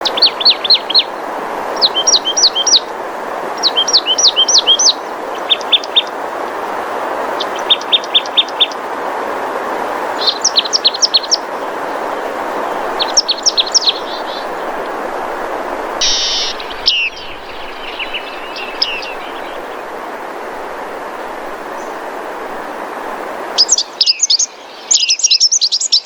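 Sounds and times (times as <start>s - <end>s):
birds chirping: 0.0s - 2.9s, 3.5s - 6.2s, 7.4s - 8.8s, 10.2s - 22.6s, 23.6s - 26.0s
steady rushing background: 11.4s - 23.6s.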